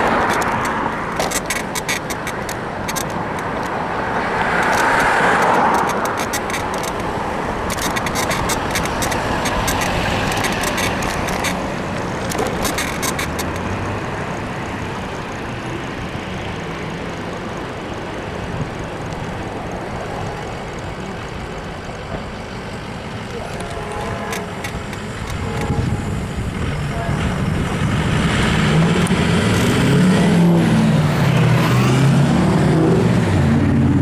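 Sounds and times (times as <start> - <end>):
bicycle suspension creaking clicks: 0.0 - 14.0, 16.0 - 26.7
road and traffic noise: 0.0 - 34.0
car passing: 3.6 - 15.0.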